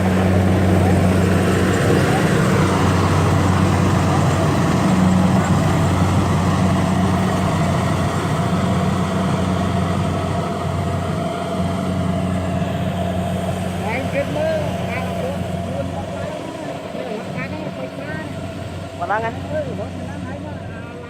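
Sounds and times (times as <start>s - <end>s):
heavy engine running: 0.0s - 21.0s.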